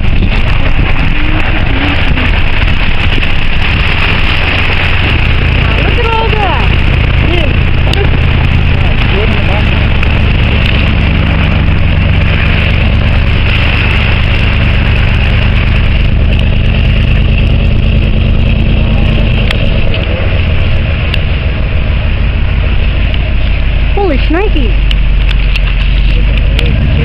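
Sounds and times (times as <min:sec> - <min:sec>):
loud even noise: 0:00.0 - 0:27.0
vehicle engine hum: 0:00.0 - 0:27.0.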